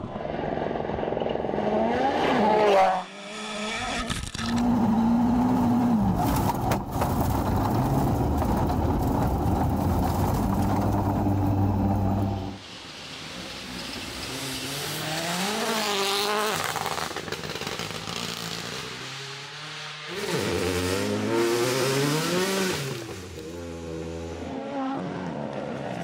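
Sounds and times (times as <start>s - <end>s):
rally car engine accelerating: 0.1s - 12.6s, 14.2s - 26.0s
tyres hissing on loose stones: 6.8s - 15.6s.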